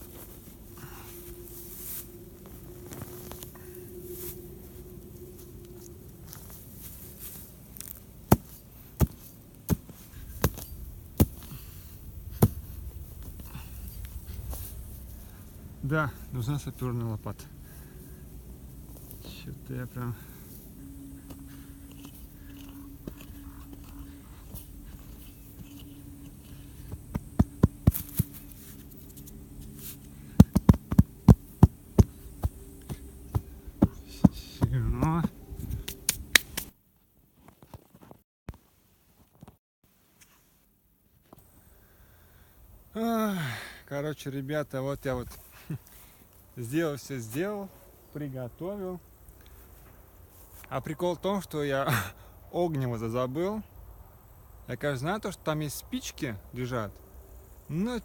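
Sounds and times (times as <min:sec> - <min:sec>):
faint steady hum: 0:00.0 - 0:36.1
sharp knocks and thuds: 0:26.9 - 0:28.4, 0:30.4 - 0:35.3.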